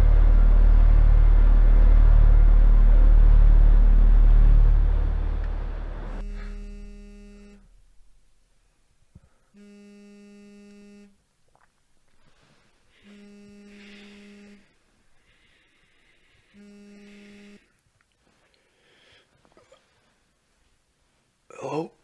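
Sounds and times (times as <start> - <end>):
loud low rumble: 0.0 - 7.2
mobile phone vibrating: 6.2 - 7.8, 9.5 - 11.2, 12.9 - 14.8, 16.2 - 17.8.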